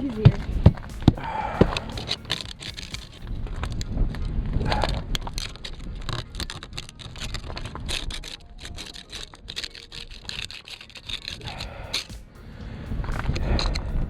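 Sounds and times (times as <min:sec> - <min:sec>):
ice cracking and scraping: 0:01.7 - 0:12.1.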